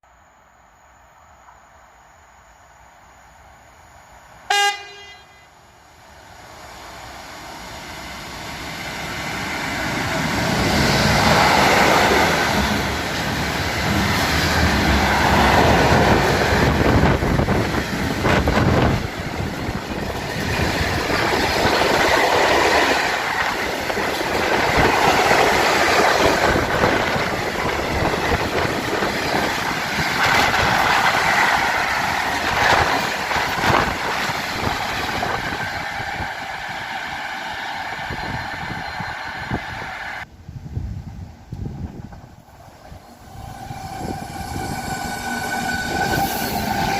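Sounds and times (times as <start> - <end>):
train horn blast: 4.5 - 5.6
train wheels on rails: 5.8 - 40.4, 41.0 - 46.9.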